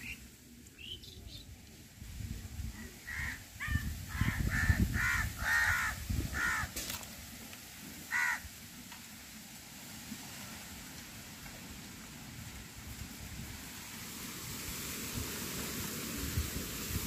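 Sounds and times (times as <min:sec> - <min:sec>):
bird harsh nasal calls: 0:03.0 - 0:06.7, 0:08.1 - 0:08.4.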